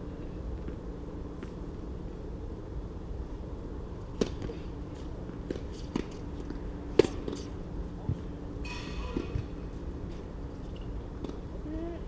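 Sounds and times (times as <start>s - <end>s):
steady low hum: 0.0s - 12.0s
rackets striking tennis ball: 4.2s - 4.6s, 5.4s - 7.6s, 8.6s - 11.4s.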